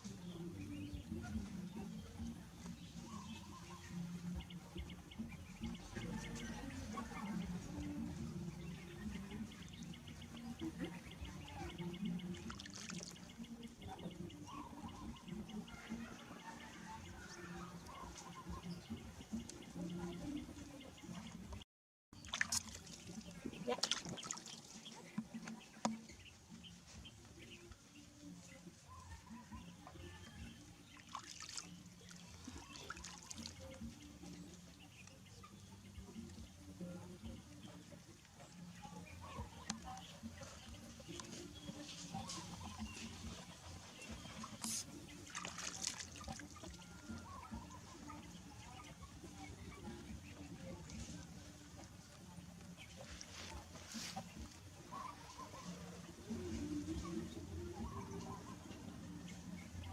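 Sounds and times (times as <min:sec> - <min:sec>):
water trickling and splashing: 0:08.9 - 0:14.2, 0:22.2 - 0:26.6, 0:30.5 - 0:36.8, 0:37.7 - 0:57.8
water pouring and trickling: 0:22.2 - 0:25.4, 0:30.9 - 0:34.0, 0:43.4 - 0:47.4.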